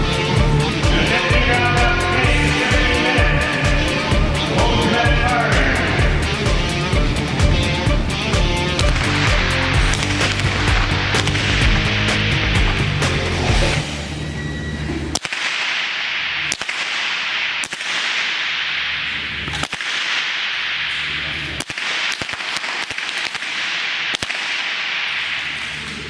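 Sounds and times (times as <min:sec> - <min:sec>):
rifle shots: 0:08.2 - 0:13.6, 0:15.1 - 0:26.0.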